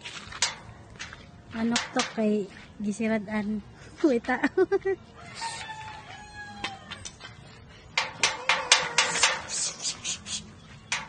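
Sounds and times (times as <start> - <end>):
chicken calling: 5.2 - 7.0, 8.2 - 10.5.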